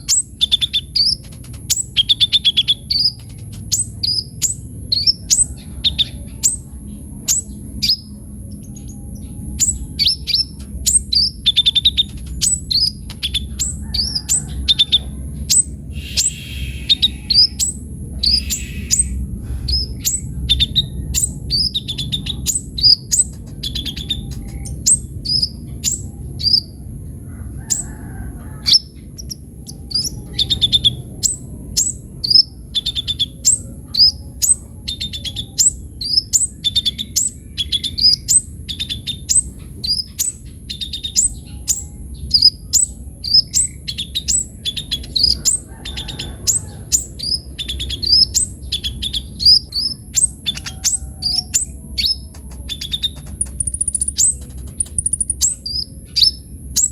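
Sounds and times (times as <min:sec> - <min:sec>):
sunbird chirping song: 0:00.0 - 0:56.9
thin steady high tone: 0:47.6 - 0:55.9.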